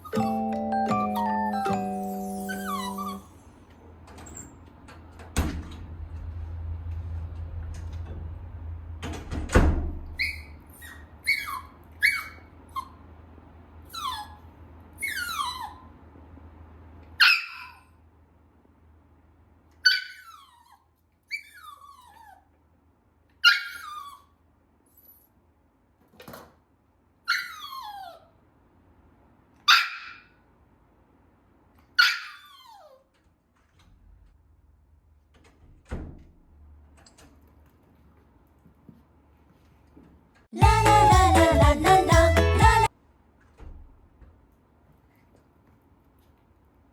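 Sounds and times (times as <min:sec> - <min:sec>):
puppy whining and yelping: 0:01.1 - 0:03.4, 0:10.2 - 0:13.0, 0:13.9 - 0:16.0, 0:17.2 - 0:17.9, 0:19.8 - 0:22.5, 0:23.4 - 0:24.4, 0:27.3 - 0:28.4, 0:32.0 - 0:33.1.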